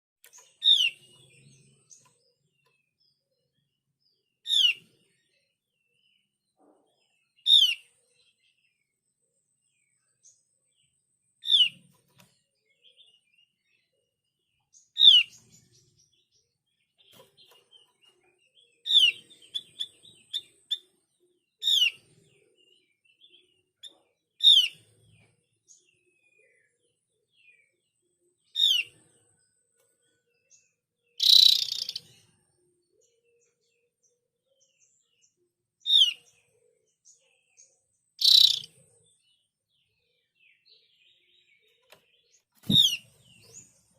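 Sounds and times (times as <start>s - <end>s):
white-eye bird calling: 0.6s - 1.2s, 4.5s - 4.8s, 7.4s - 7.9s, 15.0s - 15.4s, 18.8s - 20.8s, 24.4s - 24.8s, 28.6s - 28.9s, 31.2s - 32.0s, 35.9s - 36.2s, 38.2s - 38.7s, 42.6s - 43.1s
short bird chirps: 31.2s - 32.3s, 38.2s - 38.9s, 41.5s - 43.9s.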